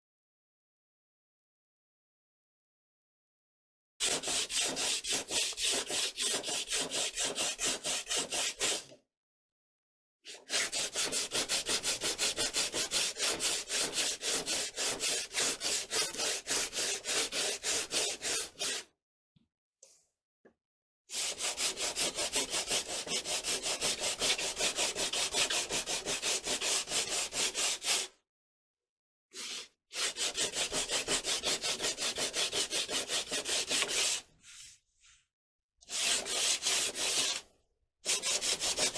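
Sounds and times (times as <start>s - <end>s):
hand sanding strokes: 4.0s - 8.9s, 10.5s - 18.8s, 21.2s - 28.1s, 29.4s - 34.8s, 35.9s - 37.4s, 38.1s - 38.9s.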